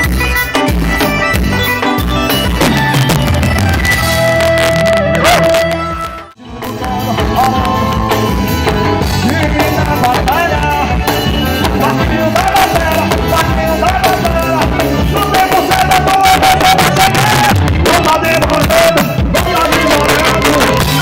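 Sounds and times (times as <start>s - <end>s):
gospel band playing: 0.0s - 21.0s
person singing: 4.8s - 21.0s.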